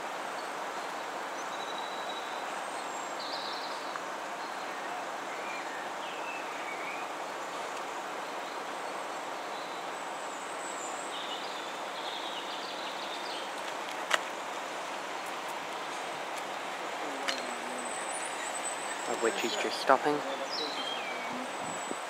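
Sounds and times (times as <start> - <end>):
bird chirps: 17.1 - 22.0.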